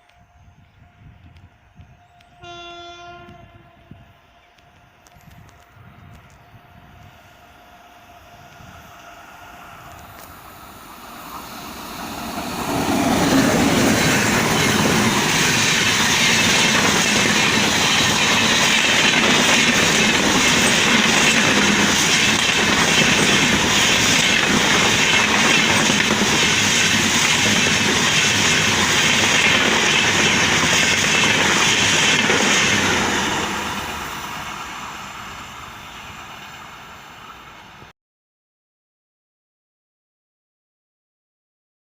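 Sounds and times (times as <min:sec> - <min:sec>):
train passing at speed: 0:00.0 - 0:37.9
train wheel clatter: 0:11.7 - 0:34.6.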